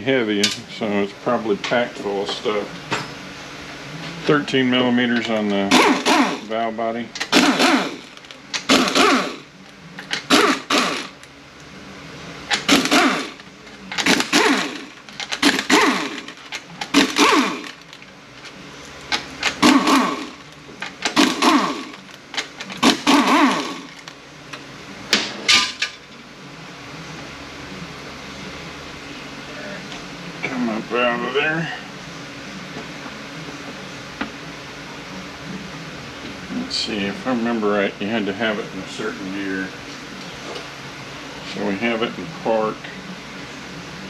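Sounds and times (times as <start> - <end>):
power ratchet running: 5.7 - 6.5, 7.2 - 11.2, 12.5 - 18.0, 19.1 - 24.1.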